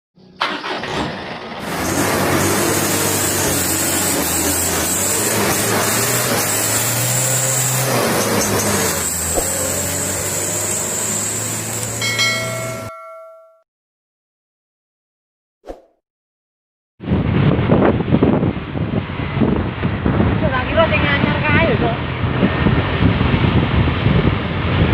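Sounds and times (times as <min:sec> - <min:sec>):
truck engine humming: 0:00.8 - 0:13.2
bell-like ringing chime: 0:12.0 - 0:13.6.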